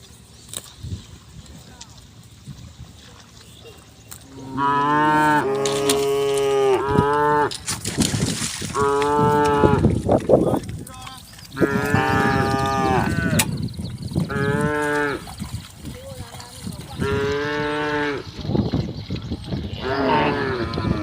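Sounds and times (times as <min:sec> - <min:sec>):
cattle mooing: 0:04.3 - 0:07.6, 0:08.7 - 0:09.9, 0:11.6 - 0:13.6, 0:14.3 - 0:15.3, 0:17.0 - 0:18.3, 0:19.6 - 0:21.0
noisy rustling: 0:05.2 - 0:19.6.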